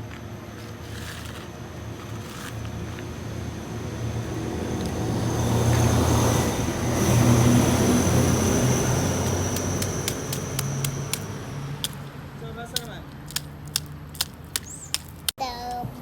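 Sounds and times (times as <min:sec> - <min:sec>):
motor humming with high whine: 0:00.0 - 0:11.8.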